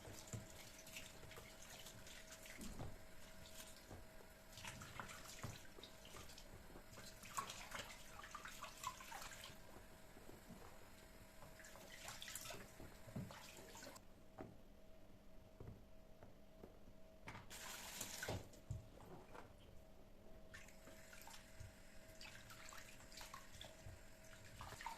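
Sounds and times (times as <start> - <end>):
water splashing in a sink: 0.0 - 14.0, 17.5 - 18.7, 20.5 - 24.9
faint steady hum: 0.0 - 24.9.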